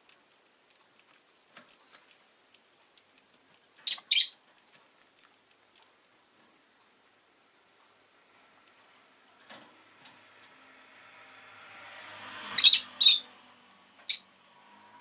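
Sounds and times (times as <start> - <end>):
bird chirping: 3.8 - 4.4, 12.6 - 13.3, 14.0 - 14.3.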